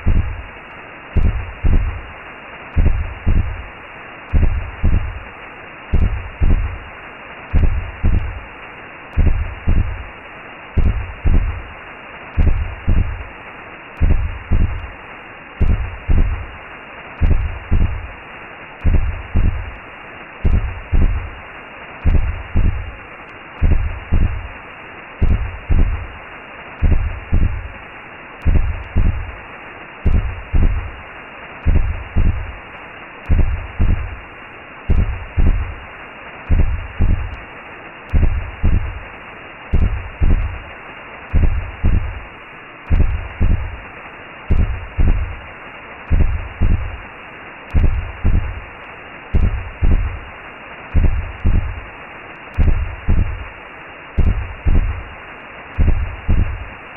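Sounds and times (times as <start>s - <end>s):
heartbeat double thumps: 0.0s - 0.5s, 1.1s - 2.1s, 2.8s - 3.7s, 4.3s - 5.3s, 5.9s - 6.9s, 7.5s - 8.5s, 9.1s - 10.1s, 10.8s - 11.7s, 12.4s - 13.3s, 14.0s - 14.9s, 15.6s - 16.6s, 17.2s - 18.2s, 18.8s - 19.8s, 20.4s - 21.4s, 22.0s - 23.0s, 23.6s - 24.6s, 25.2s - 26.2s, 26.8s - 27.8s, 28.4s - 29.4s, 30.0s - 31.0s, 31.6s - 32.6s, 33.2s - 34.2s, 34.9s - 35.8s, 36.5s - 37.5s, 38.1s - 39.1s, 39.7s - 40.7s, 41.3s - 42.3s, 42.9s - 43.9s, 44.5s - 45.5s, 46.1s - 47.1s, 47.7s - 48.7s, 49.3s - 50.3s, 50.9s - 51.9s, 52.6s - 53.6s, 54.2s - 55.1s, 55.8s - 56.8s
constant whooshing hiss: 0.0s - 56.9s.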